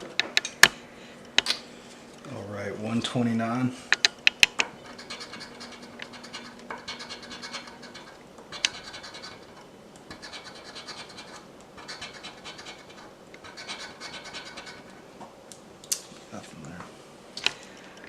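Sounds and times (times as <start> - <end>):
lottery ticket being scratched: 4.6 - 15.0.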